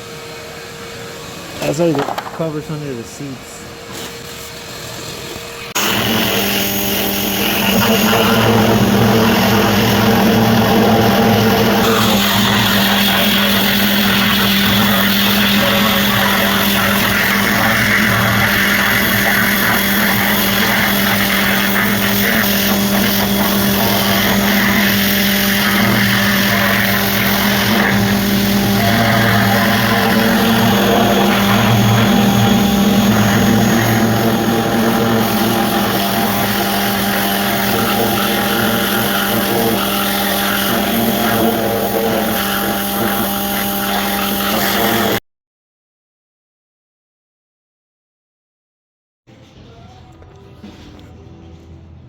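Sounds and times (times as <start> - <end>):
machine motor humming: 0.0 - 45.2.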